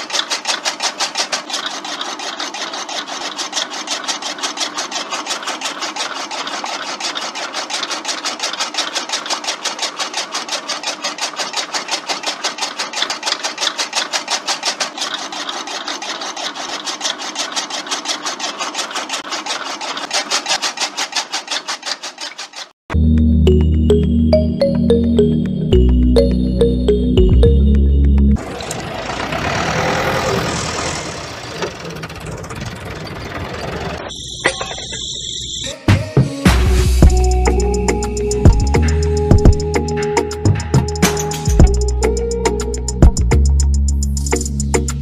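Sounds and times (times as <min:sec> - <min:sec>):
blade chopping stems: 0:00.0 - 0:22.8
music: 0:22.9 - 0:28.4, 0:35.8 - 0:45.0.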